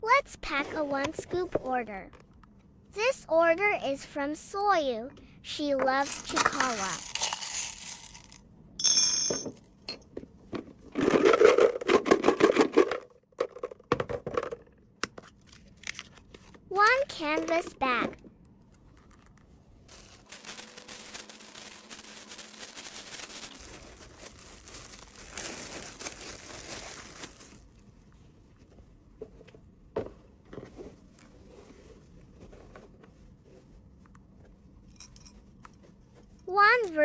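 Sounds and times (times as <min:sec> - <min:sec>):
packaging rustling and crinkling: 0:19.1 - 0:27.7.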